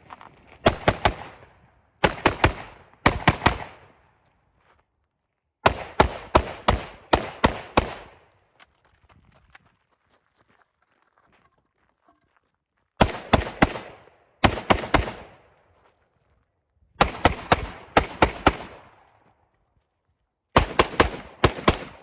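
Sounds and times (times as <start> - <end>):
rifle shots echoing: 0.6 - 4.0, 5.6 - 8.3, 13.0 - 15.5, 17.0 - 19.1, 20.6 - 22.0.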